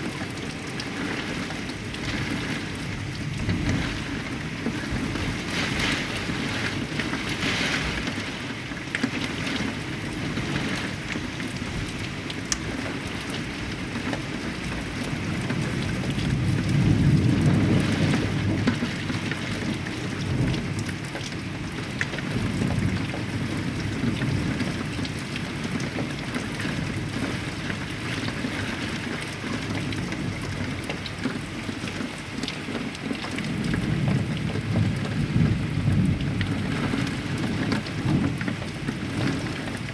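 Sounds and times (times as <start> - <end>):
heavy rain falling: 0.0 - 39.9
thunder rumble: 15.6 - 19.2, 33.6 - 39.9.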